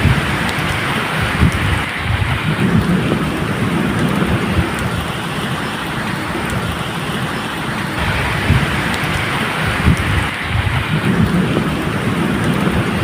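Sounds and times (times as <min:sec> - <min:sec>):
thunder rumbling low: 0:00.0 - 0:07.2, 0:08.0 - 0:13.0
medium rain falling: 0:00.0 - 0:13.0.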